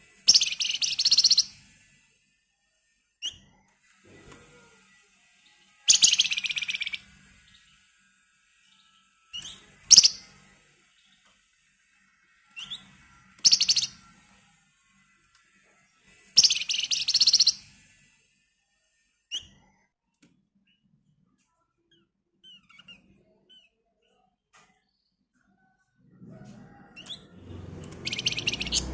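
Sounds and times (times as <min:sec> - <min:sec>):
bird chirping and trilling: 0:00.3 - 0:01.6, 0:05.9 - 0:07.6, 0:08.8 - 0:10.4, 0:12.6 - 0:14.0, 0:16.4 - 0:17.7, 0:27.9 - 0:28.9.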